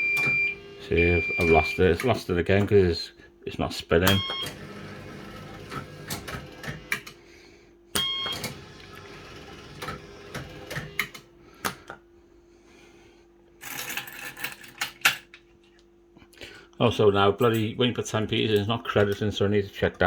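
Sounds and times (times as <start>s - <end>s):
machine hum: 0.0s - 13.5s.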